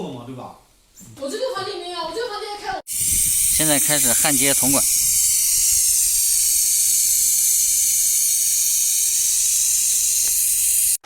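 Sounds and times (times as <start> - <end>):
torch flame hissing: 2.9 - 11.0.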